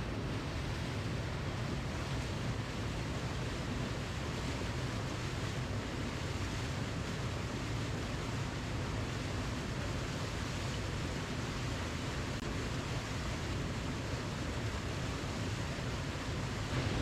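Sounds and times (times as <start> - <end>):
waterfall roaring: 10.7 - 17.0.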